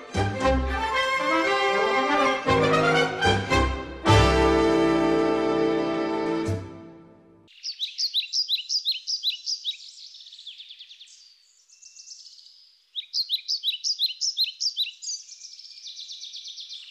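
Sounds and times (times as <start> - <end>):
quiet bird trill: 7.5 - 16.9
small bird chirping: 7.5 - 16.9.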